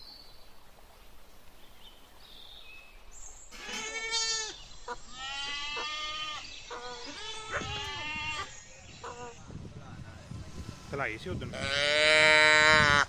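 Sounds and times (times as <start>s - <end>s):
animal long drawn-out cries: 3.6s - 8.5s.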